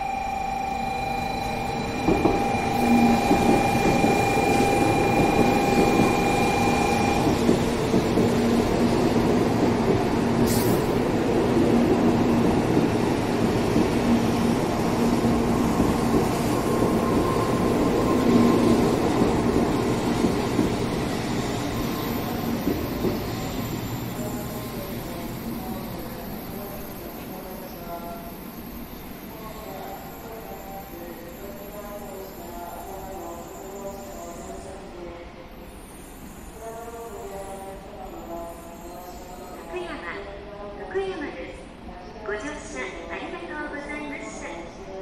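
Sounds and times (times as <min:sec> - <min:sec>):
high whine: 0:00.0 - 0:07.5
train wheels roaring on rail: 0:00.0 - 0:39.7.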